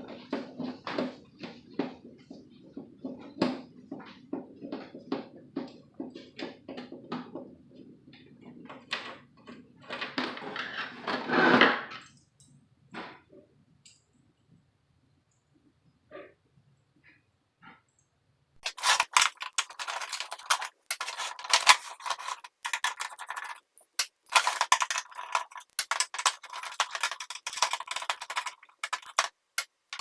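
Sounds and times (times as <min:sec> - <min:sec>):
scraping and rustling: 0:18.6 - 0:29.3
small parts clicking: 0:18.6 - 0:29.3.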